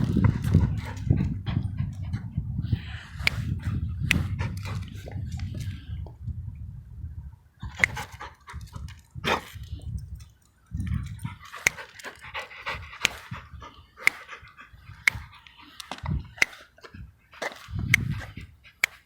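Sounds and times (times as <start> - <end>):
dog panting: 0.0 - 2.6, 3.2 - 5.2, 10.9 - 19.0
low rumble: 0.0 - 7.4.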